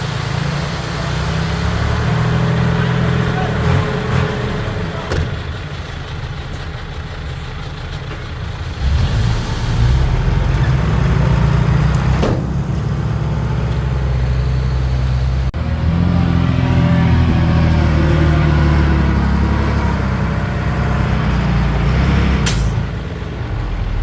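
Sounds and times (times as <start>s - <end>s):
heavy diesel engine running: 0.0s - 24.0s
sharp metal clank: 22.4s - 22.9s.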